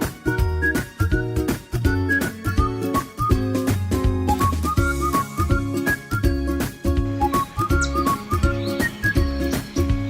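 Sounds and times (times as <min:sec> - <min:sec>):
upbeat playful background music: 0:00.0 - 0:10.0.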